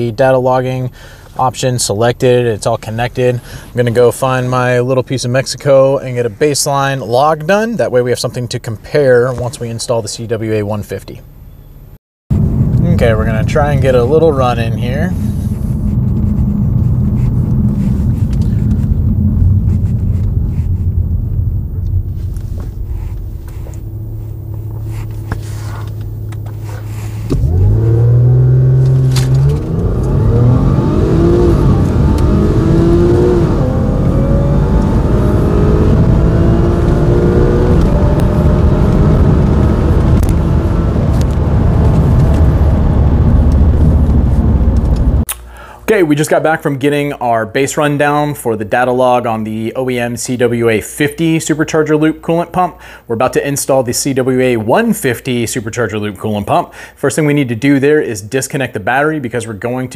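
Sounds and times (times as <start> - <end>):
car engine accelerating: 12.3 - 45.3.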